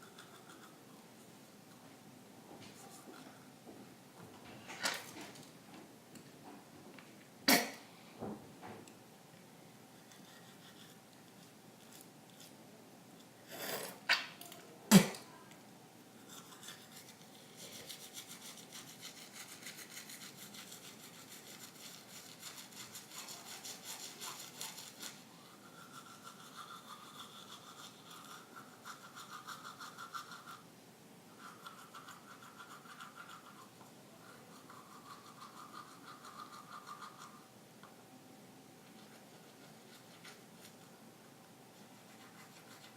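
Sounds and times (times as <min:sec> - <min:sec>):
toothbrush scrubbing teeth: 0:00.0 - 0:00.8, 0:10.0 - 0:12.6, 0:16.2 - 0:30.6, 0:31.3 - 0:37.4, 0:38.8 - 0:40.9, 0:41.8 - 0:42.9.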